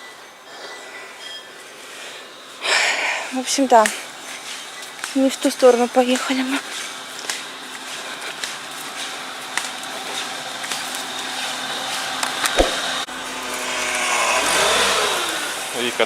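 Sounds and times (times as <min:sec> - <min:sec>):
car engine and tyre noise: 0:06.6 - 0:16.0.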